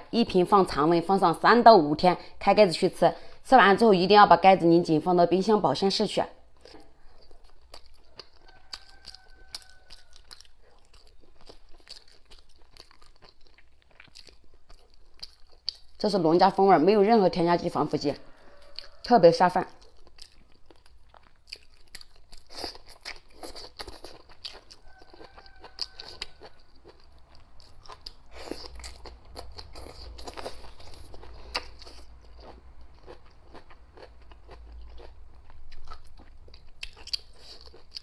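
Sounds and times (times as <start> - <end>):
person chewing and crunching food: 6.4 - 16.1, 18.4 - 38.0.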